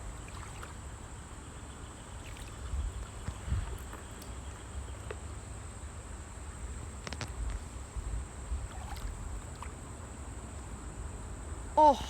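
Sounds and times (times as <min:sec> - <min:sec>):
steady outdoor hiss: 0:00.0 - 0:12.0
wind rumbling on microphone: 0:02.5 - 0:04.2, 0:06.6 - 0:09.9.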